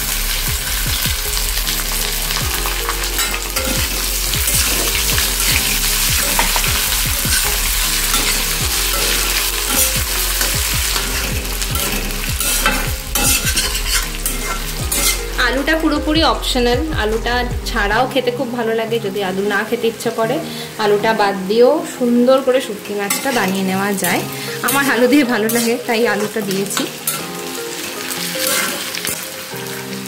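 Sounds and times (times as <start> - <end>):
food sizzling in hot oil: 0.0 - 16.1, 19.5 - 30.0
steel spatula scraping a pan: 1.6 - 15.4, 23.1 - 29.2.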